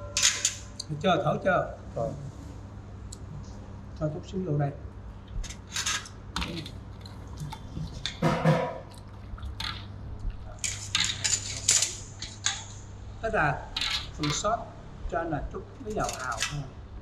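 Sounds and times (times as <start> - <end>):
steady low hum: 0.0 - 17.0
liquid pouring: 6.4 - 11.6
utensils knocking on dishes: 8.0 - 8.9, 10.6 - 12.8.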